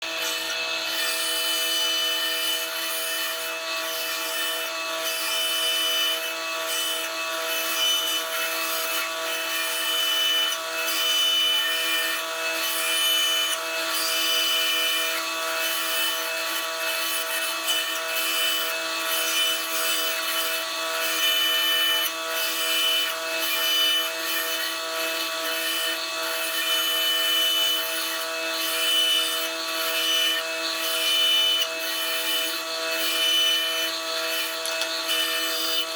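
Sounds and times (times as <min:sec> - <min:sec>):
power saw cutting wood: 0:00.0 - 0:35.9.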